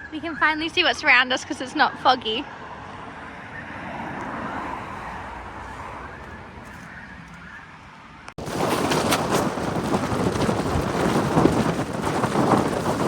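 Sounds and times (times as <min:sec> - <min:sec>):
outdoor background noise: 0:00.0 - 0:13.0
wind buffeting microphone: 0:08.4 - 0:13.0.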